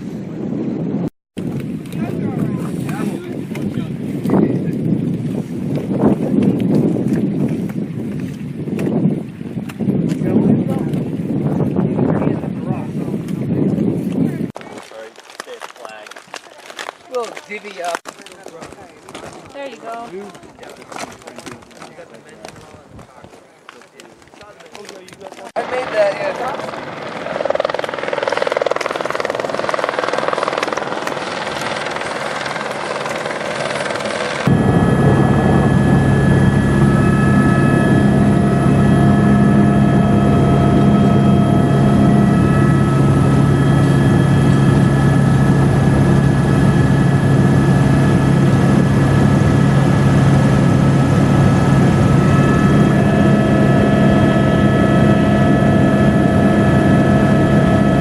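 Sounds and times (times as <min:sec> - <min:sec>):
helicopter running: 0:25.4 - 0:58.0.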